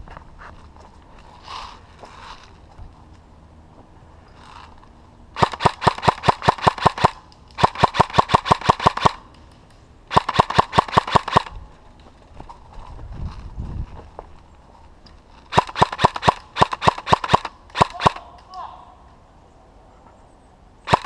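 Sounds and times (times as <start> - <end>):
airsoft gun full-auto bursts: 5.4 - 9.2, 10.1 - 11.5, 15.5 - 18.2.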